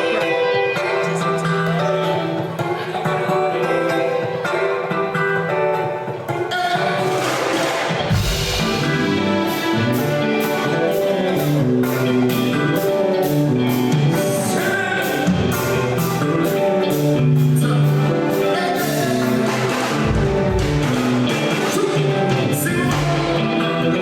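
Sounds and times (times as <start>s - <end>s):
live band music: 0.0s - 24.0s
people singing: 14.1s - 24.0s.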